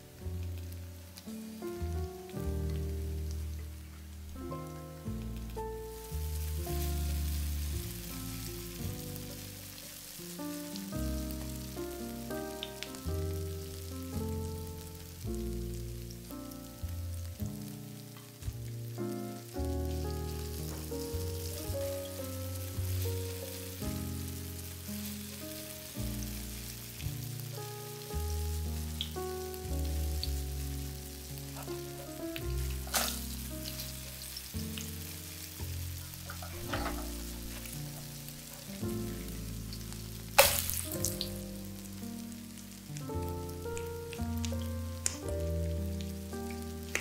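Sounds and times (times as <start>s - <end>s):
background music melody: 0.0s - 47.0s
fritters sizzling in oil: 0.0s - 47.0s
oil popping: 30.2s - 41.4s.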